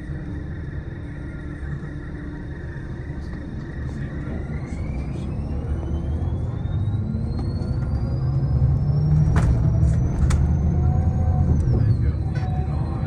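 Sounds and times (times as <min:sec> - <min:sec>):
vehicle rumble with motor whine: 0:00.0 - 0:13.0.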